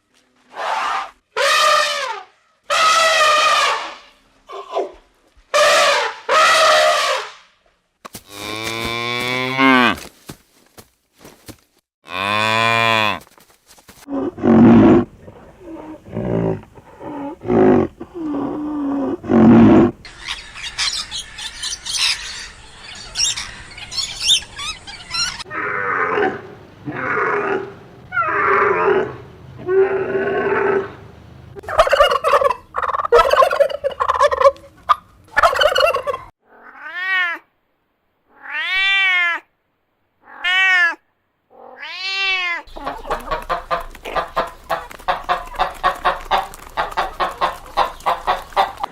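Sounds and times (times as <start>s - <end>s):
big cat roaring: 14.1s - 20.0s, 25.5s - 31.0s.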